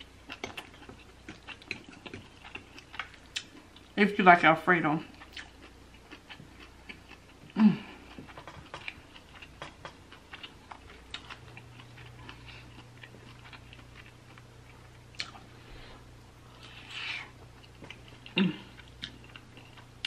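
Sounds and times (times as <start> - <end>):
short hummed vocal sound: 7.5 - 8.1, 18.2 - 18.8.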